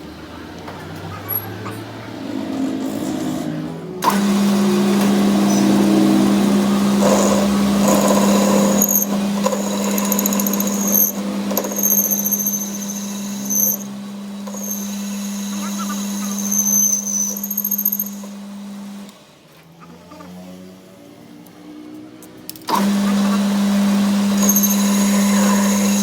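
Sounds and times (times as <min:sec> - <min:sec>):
workshop machine humming and rasping: 0:00.0 - 0:26.0
short high-pitched whines: 0:03.0 - 0:18.4.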